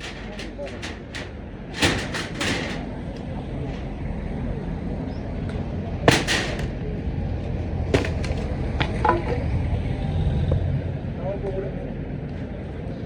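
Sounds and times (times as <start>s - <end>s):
steady low rumble: 0.0s - 13.0s
sharp knocks: 6.1s - 6.9s, 8.0s - 8.5s.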